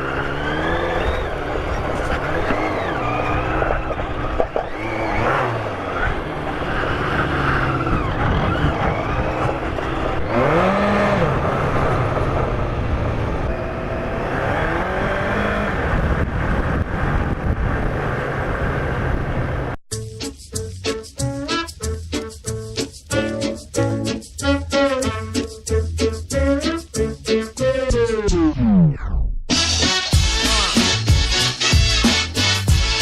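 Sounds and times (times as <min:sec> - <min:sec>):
motorcycle engine revving: 0:00.0 - 0:17.4.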